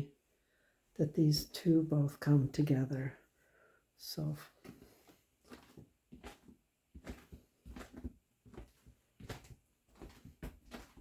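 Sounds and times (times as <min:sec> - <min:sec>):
footsteps walking: 0:04.5 - 0:11.0.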